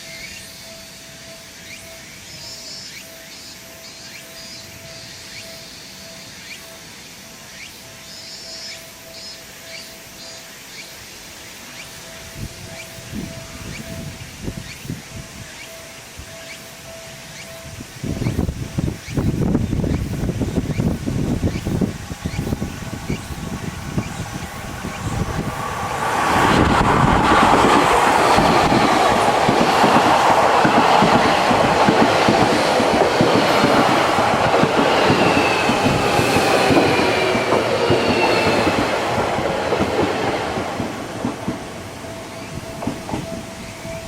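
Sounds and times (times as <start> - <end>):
train wheels clicking over rail joints: 11.7 - 44.0.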